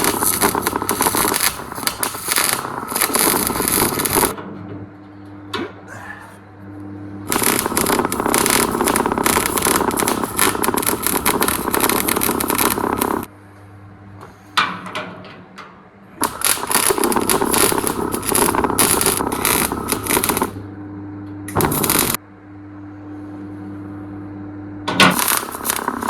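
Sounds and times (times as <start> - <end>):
welding arc crackling and sizzling: 0.0 - 4.4, 6.7 - 13.3, 16.2 - 20.7, 21.5 - 22.2, 24.9 - 26.0
welder humming: 0.0 - 14.6, 15.9 - 26.0.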